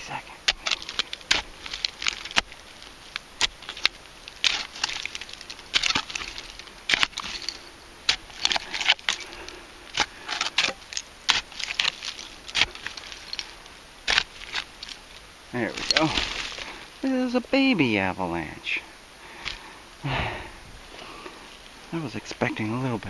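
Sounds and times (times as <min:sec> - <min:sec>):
digging tool scraping dirt: 0:00.0 - 0:17.0.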